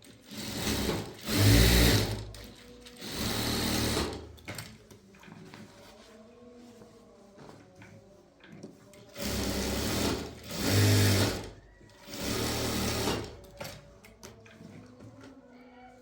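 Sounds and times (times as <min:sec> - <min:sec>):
sewing machine running: 0:00.0 - 0:04.3, 0:09.1 - 0:13.5.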